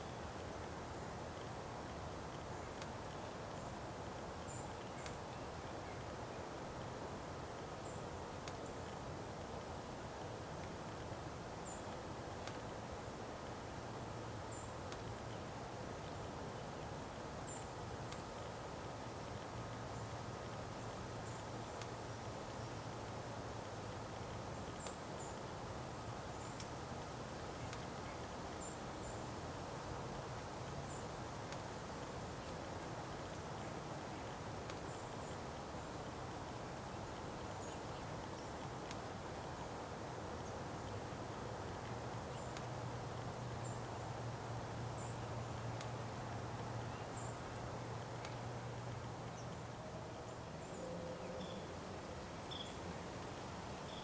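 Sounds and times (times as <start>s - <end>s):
soft even hiss: 0.0s - 54.0s
small birds chirping: 46.8s - 47.6s, 49.2s - 54.0s
faint high-pitched chirps: 50.7s - 52.9s.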